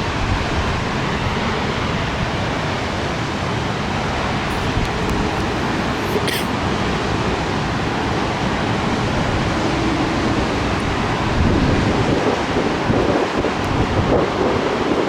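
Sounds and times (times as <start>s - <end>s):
wind gusts: 0.0s - 15.0s
rain: 6.6s - 15.0s
wind buffeting microphone: 10.3s - 15.0s.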